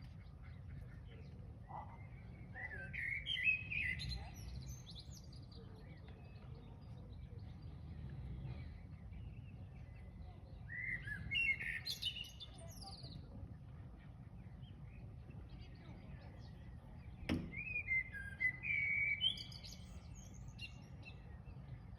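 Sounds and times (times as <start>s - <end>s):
songbird whistling: 2.3s - 5.3s, 10.7s - 13.1s, 17.3s - 20.9s
sharp knock: 17.3s - 17.6s.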